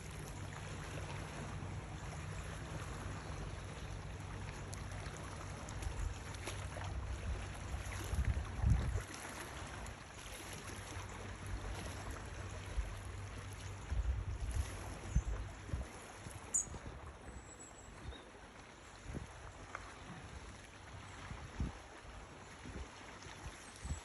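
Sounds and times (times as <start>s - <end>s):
low steady rumble: 0.0s - 22.8s
wind buffeting microphone: 6.9s - 9.9s, 21.1s - 24.0s.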